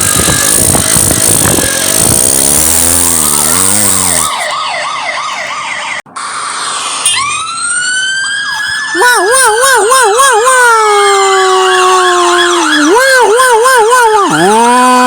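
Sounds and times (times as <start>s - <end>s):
cartoon engine rush: 0.0s - 15.0s
siren wail: 0.0s - 15.0s
police siren yelping: 3.4s - 15.0s.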